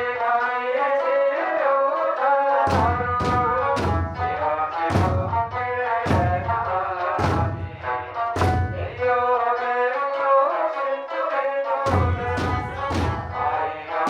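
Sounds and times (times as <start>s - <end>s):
taiko drum strikes: 2.7s - 9.2s, 11.9s - 13.6s.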